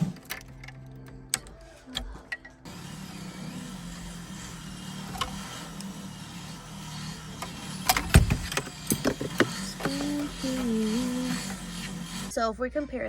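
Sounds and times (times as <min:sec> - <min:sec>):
car engine idling: 0:02.7 - 0:12.3.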